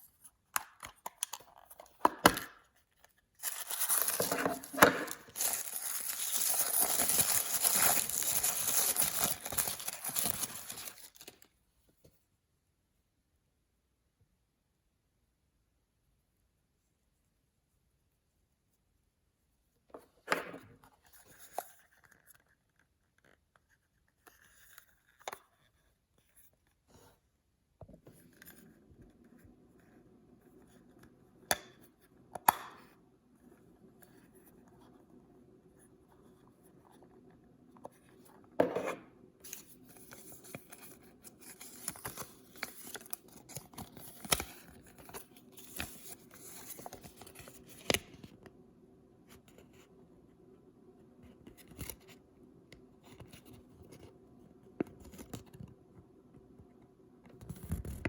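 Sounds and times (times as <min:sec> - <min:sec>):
paper tearing: 0:03.4 - 0:11.2
paper crinkling and rustling: 0:03.4 - 0:11.5, 0:39.4 - 0:48.3.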